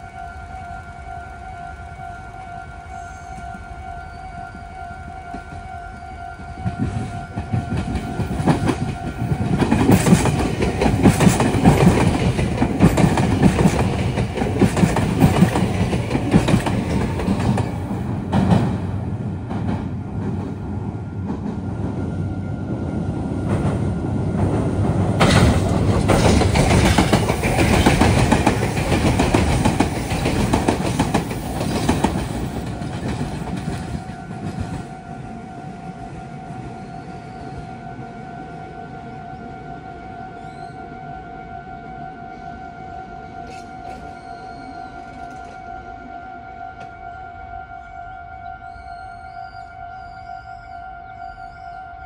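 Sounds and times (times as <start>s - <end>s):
train wheels clattering over rail joints: 6.7s - 20.6s, 23.5s - 34.9s.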